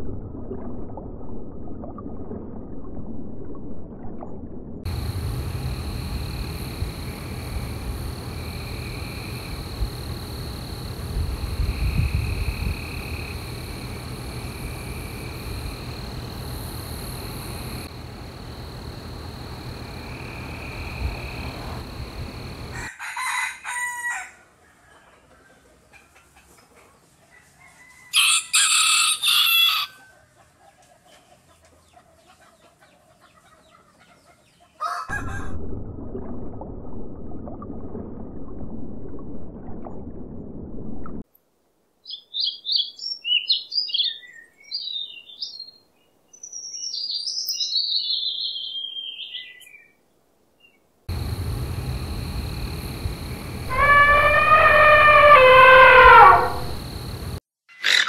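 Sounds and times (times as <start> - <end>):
steady background noise: 51.1 - 53.8
animal calls: 53.6 - 56.8.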